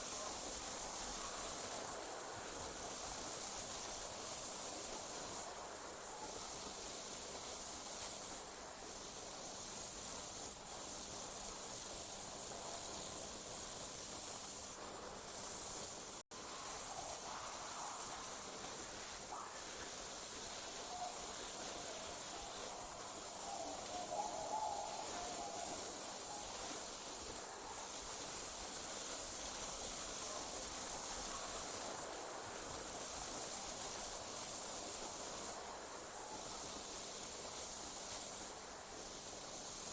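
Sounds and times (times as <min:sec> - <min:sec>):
crickets trilling: 0:12.0 - 0:32.0.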